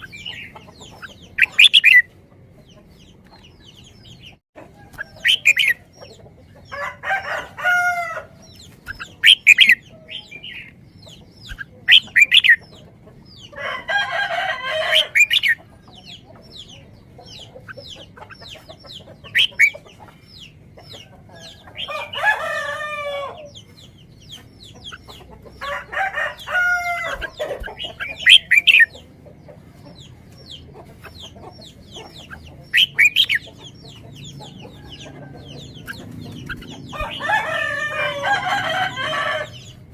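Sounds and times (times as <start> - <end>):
chickens clucking and chirping: 0.0 - 39.9
rooster crowing: 6.7 - 8.4, 13.6 - 15.2, 21.7 - 23.5, 25.6 - 27.4, 36.9 - 39.7.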